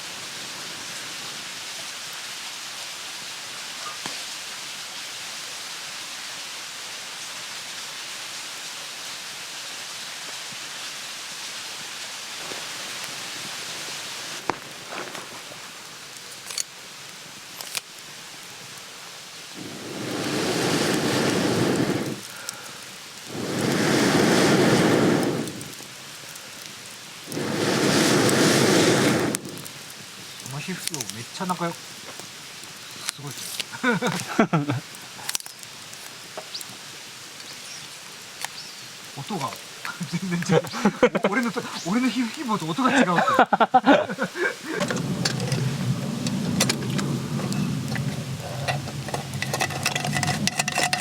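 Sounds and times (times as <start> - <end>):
fire crackles: 0.0 - 51.0
steady hiss: 0.0 - 51.0
air blown through pipe into fire: 19.5 - 31.1, 44.1 - 51.0.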